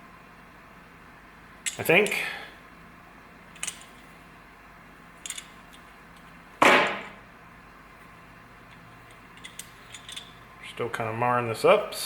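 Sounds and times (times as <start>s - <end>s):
faint clicks on metal parts: 1.6s - 2.3s, 3.5s - 4.1s, 5.2s - 6.4s, 8.0s - 10.4s.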